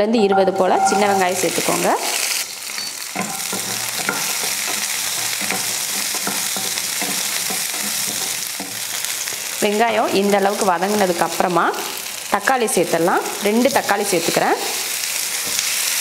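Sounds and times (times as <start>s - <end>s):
shallots sizzling in oil: 0.2s - 16.0s
utensil scraping a pan: 0.4s - 9.6s.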